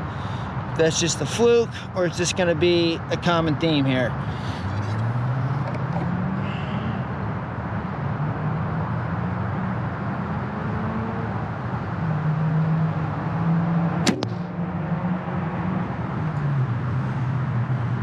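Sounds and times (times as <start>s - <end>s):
bow string release snap: 14.0s - 14.4s
arrow striking target: 14.0s - 14.6s.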